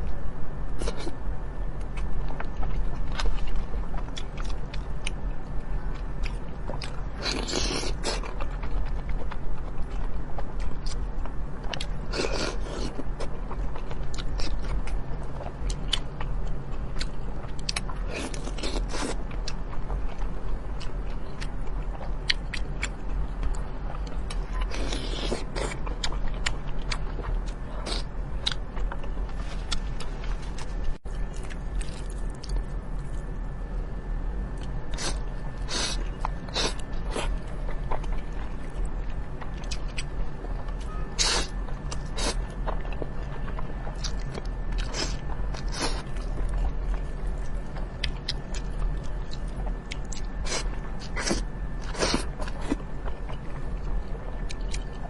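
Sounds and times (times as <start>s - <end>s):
steady low hum: 0.0s - 55.0s
wet chewing: 34.6s - 55.0s.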